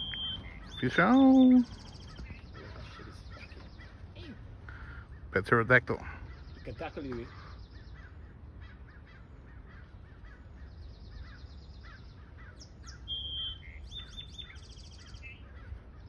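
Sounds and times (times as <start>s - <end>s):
clear whistled bird calls: 0.0s - 5.4s, 9.0s - 16.0s
small birds chirping: 0.0s - 16.0s.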